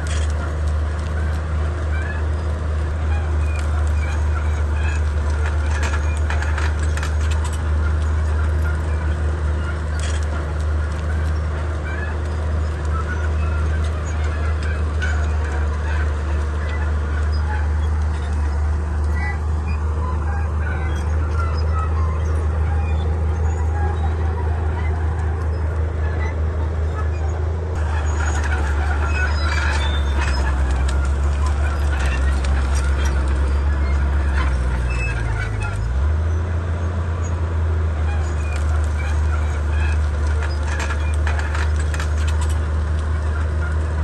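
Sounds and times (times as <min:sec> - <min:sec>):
clicks and clanks: 0:00.0 - 0:36.1, 0:38.0 - 0:44.0
high squeaks: 0:00.0 - 0:36.5, 0:38.0 - 0:44.0
bulldozer diesel engine running: 0:00.0 - 0:44.0.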